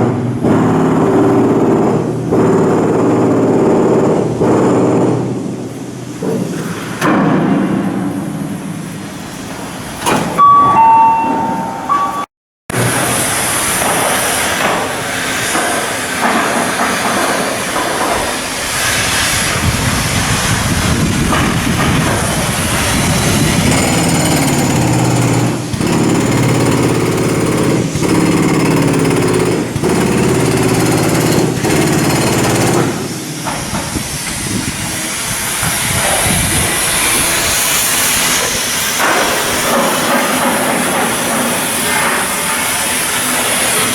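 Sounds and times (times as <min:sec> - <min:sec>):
hiss: 0:12.9 - 0:24.0, 0:32.9 - 0:43.9.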